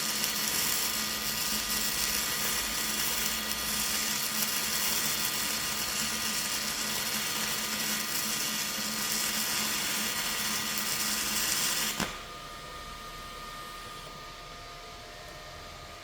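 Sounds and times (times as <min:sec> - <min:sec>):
welding arc crackling: 0:00.0 - 0:12.3.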